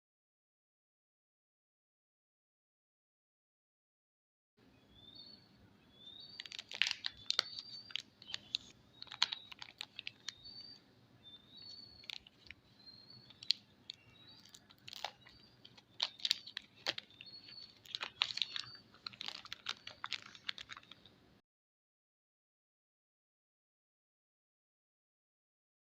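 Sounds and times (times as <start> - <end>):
packaging crinkling: 6.3 - 10.8, 11.6 - 21.1.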